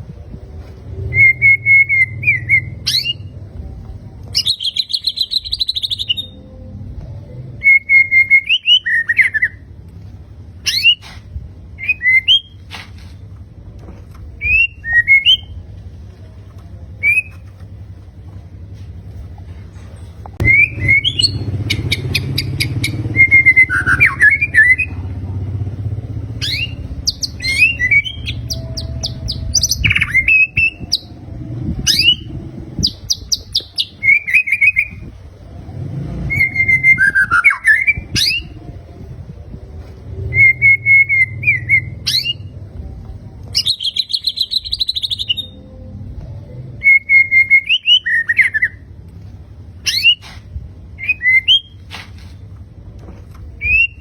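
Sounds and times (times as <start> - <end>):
bird singing: 4.3 - 6.6, 20.4 - 25.0, 26.3 - 35.1, 43.5 - 45.9
low rumble: 9.6 - 43.8.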